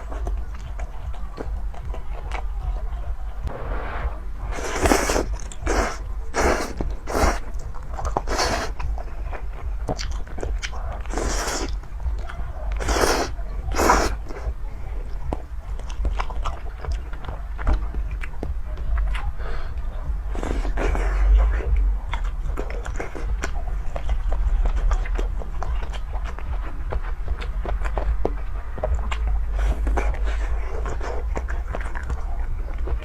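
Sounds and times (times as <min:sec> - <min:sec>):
chewing and biting: 0:00.0 - 0:03.5, 0:04.5 - 0:33.0
hissy sounds: 0:03.5 - 0:07.5.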